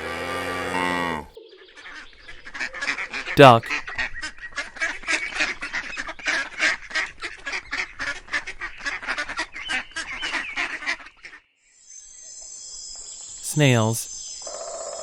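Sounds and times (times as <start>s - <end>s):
ducks quacking: 1.9s - 11.3s.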